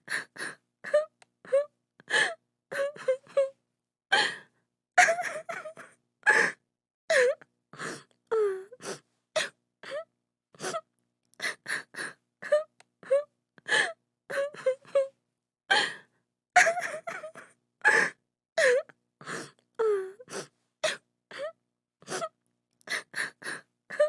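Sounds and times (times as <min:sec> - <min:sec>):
woman sobbing: 0:05.0 - 0:07.4, 0:16.6 - 0:18.9.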